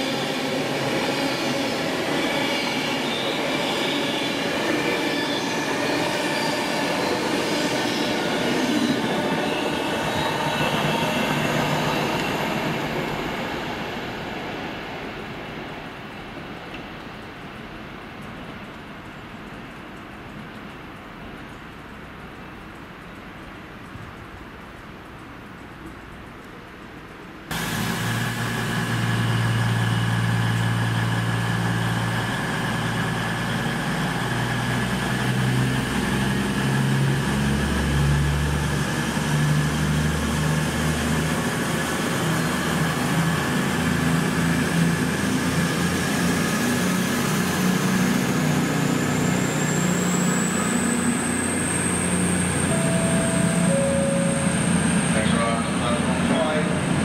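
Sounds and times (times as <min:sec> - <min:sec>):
steady train whine: 0:00.0 - 0:18.6, 0:27.5 - 0:57.0
train engine rumble: 0:00.0 - 0:21.5, 0:22.3 - 0:57.0
high rising whine: 0:27.5 - 0:57.0.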